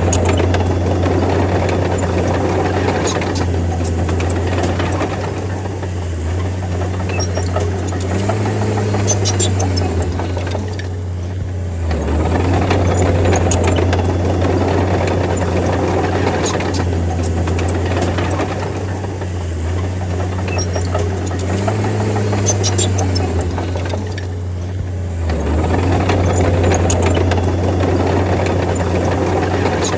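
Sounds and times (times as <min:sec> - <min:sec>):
bulldozer diesel engine droning: 0:00.0 - 0:29.9
light clanks from tracks: 0:00.0 - 0:29.9.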